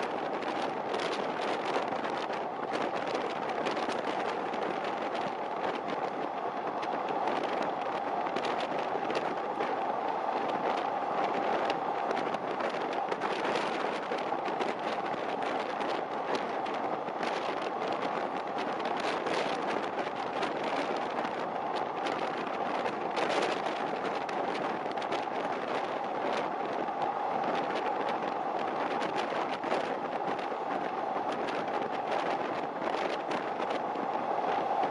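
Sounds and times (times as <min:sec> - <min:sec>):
train wheels rolling on rail: 0:00.0 - 0:34.9.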